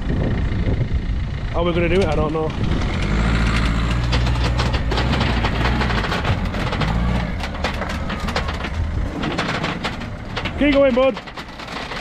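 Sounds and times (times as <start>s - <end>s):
car engine at low revs: 0.0s - 12.0s
clanks on metal ramps: 1.9s - 12.0s.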